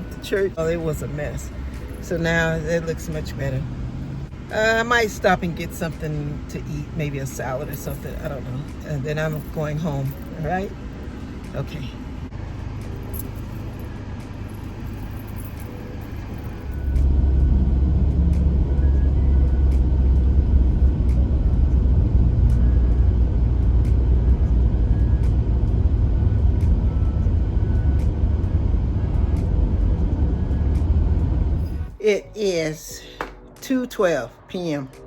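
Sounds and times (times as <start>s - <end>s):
car engine and road rumble: 0.0s - 32.2s.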